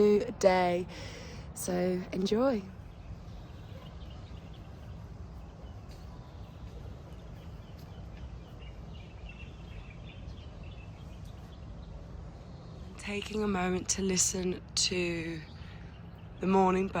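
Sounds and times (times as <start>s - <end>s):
faint birds chirping: 0.0s - 17.0s
low outdoor rumble: 0.0s - 17.0s.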